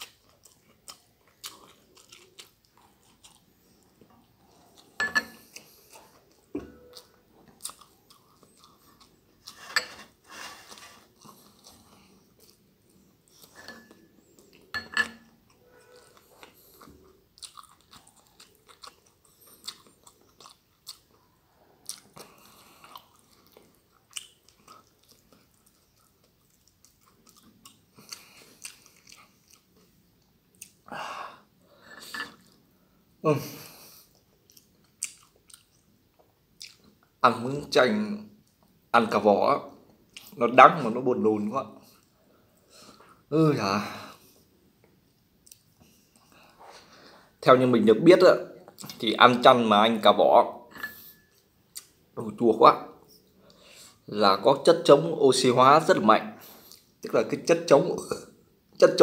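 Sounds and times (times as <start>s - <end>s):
person chewing noodles: 0.0s - 14.7s, 15.4s - 33.0s, 33.7s - 37.2s, 44.2s - 47.0s, 51.1s - 52.0s.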